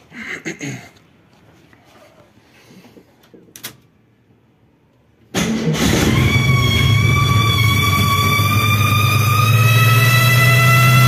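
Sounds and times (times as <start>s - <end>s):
car engine starting and running: 5.3s - 11.0s
high steady whistle: 6.1s - 11.0s.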